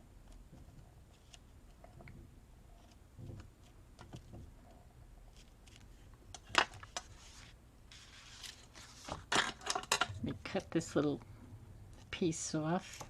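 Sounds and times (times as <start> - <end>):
paper rustling: 6.8 - 9.5.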